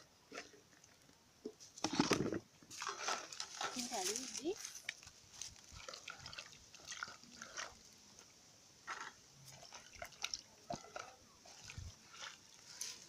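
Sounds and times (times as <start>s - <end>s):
water splashing in a basin: 2.7s - 8.0s, 8.9s - 13.0s.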